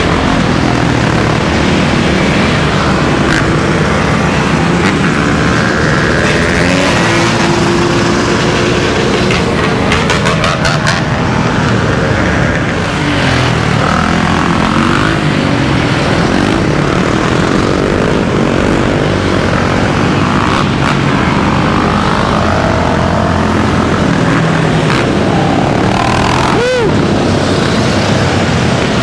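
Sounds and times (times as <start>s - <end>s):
dirt bike engines revving: 0.0s - 29.0s
wind and road noise: 0.0s - 29.0s.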